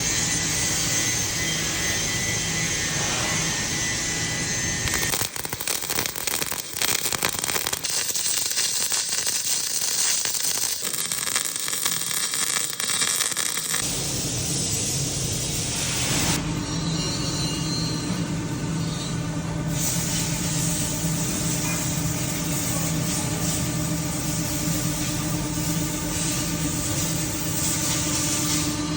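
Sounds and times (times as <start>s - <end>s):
welding arc crackling: 4.6s - 16.3s.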